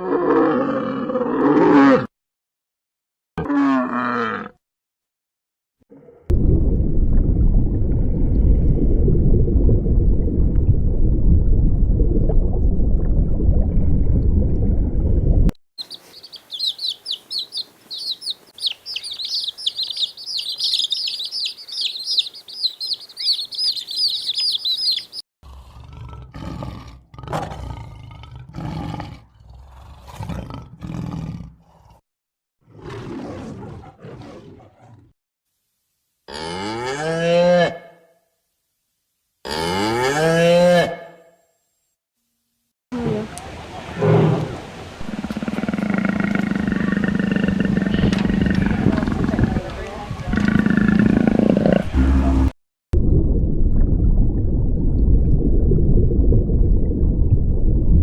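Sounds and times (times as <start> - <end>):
rough low animal growl: 0.0 - 2.1, 3.4 - 4.6, 25.4 - 32.0, 44.0 - 52.5
small birds twittering: 15.8 - 25.2.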